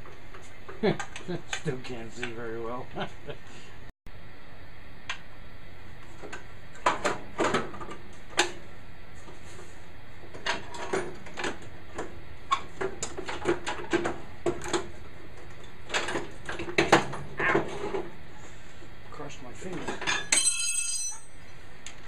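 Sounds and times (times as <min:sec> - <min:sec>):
metal tools clinking: 0:20.0 - 0:21.4.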